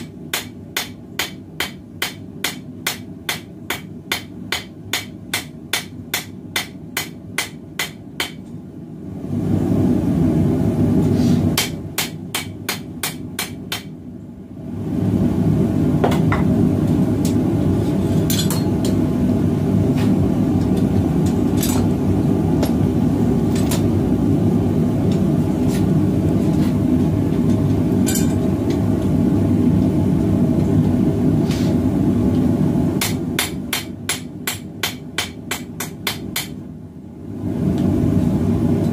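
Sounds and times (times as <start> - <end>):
hammer striking steel on anvil: 0.0 - 8.4, 11.6 - 13.9, 28.1 - 28.4, 33.0 - 36.6
forge burner roaring: 8.6 - 35.6, 36.6 - 38.9.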